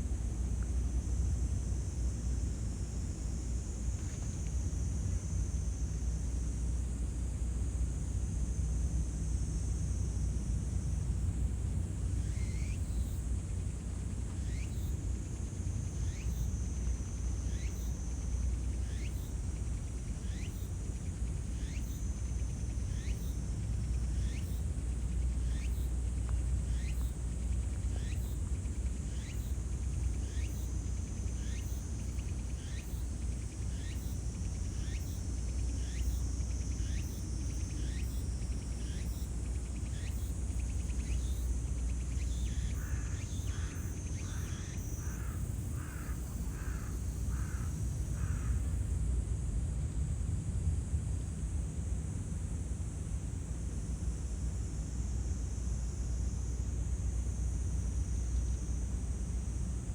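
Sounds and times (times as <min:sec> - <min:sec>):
high insect trill: 0:00.4 - 0:49.8, 0:52.2 - 0:59.9.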